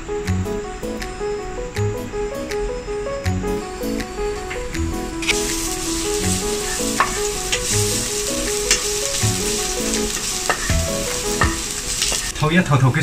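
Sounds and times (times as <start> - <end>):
melody: 0.0 - 12.5
aromatics sizzling in hot oil: 5.2 - 12.6.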